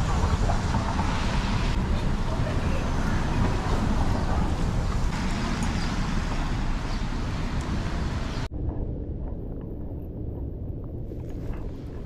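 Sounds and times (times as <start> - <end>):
road traffic rumble: 0.0 - 8.5.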